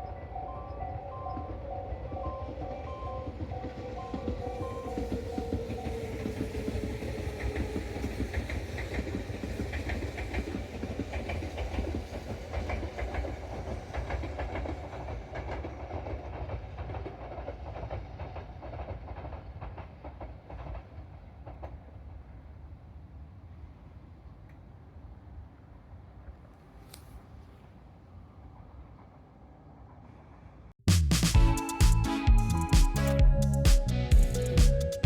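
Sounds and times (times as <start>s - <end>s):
train rumble: 0.0s - 26.8s
train wheels clacking over rail joints: 3.5s - 21.8s.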